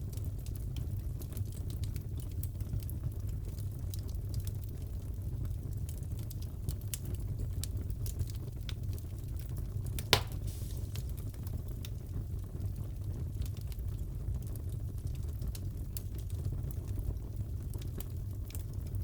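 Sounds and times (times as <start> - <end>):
wood fire crackling: 0.0 - 19.0
sharp fire pop: 10.0 - 11.2.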